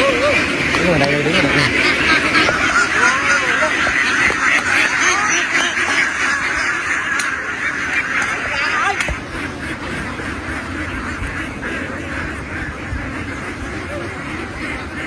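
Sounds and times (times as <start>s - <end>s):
flock of ducks quacking: 0.0s - 15.0s.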